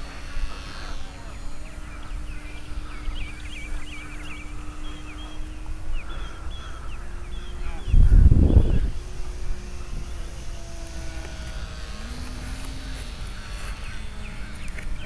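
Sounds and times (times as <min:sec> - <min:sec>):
birds chirping: 0:00.0 - 0:15.0
faint steady hum: 0:00.0 - 0:15.0.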